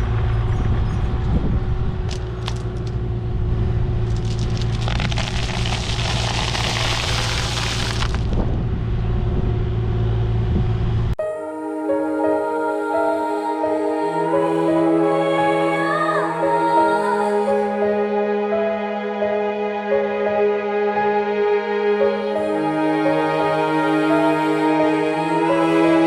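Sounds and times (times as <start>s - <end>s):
diesel engine running: 0.0s - 11.2s
soft background music: 11.2s - 26.0s.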